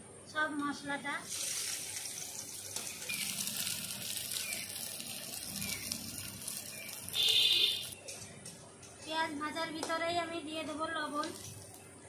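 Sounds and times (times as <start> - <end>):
vegetables sizzling in hot oil: 0.8 - 8.1.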